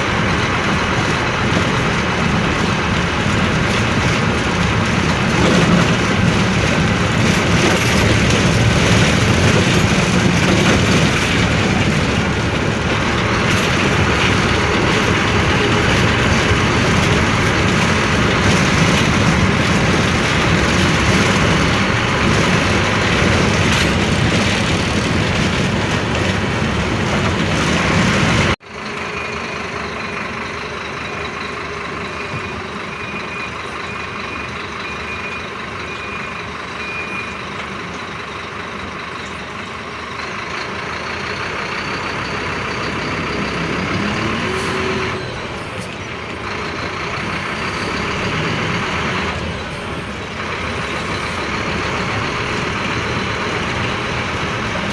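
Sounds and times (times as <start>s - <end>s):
bus engine and road noise: 0.0s - 54.9s
short beeps: 32.0s - 37.5s.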